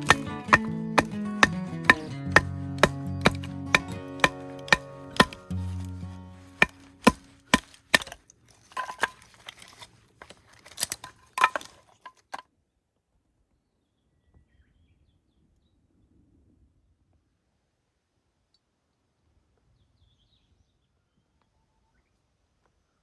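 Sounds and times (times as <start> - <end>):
sharp knocks: 0.0 - 5.6, 6.6 - 8.2, 11.4 - 11.7
guitar tune: 0.0 - 7.0.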